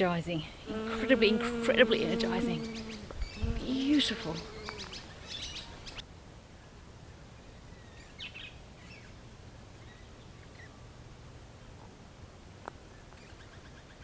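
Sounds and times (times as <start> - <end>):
birds chirping: 0.0 - 6.0.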